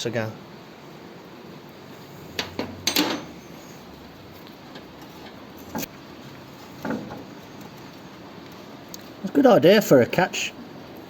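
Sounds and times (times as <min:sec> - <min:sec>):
tools and metal parts clicking: 0:02.4 - 0:03.4.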